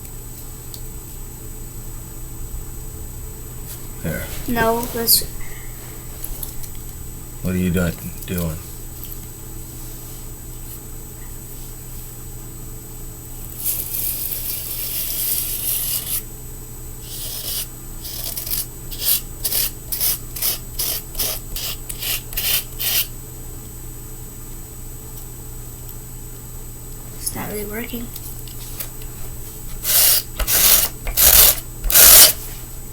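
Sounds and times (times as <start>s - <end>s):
grip tape scraping: 13.4s - 16.2s, 17.1s - 23.1s, 29.8s - 32.4s.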